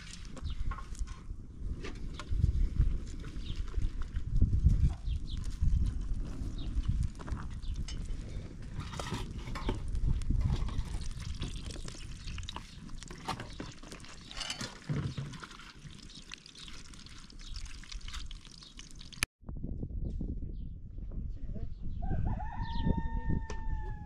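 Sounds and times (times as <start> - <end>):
potatoes sizzling in hot oil: 15.8 - 19.2.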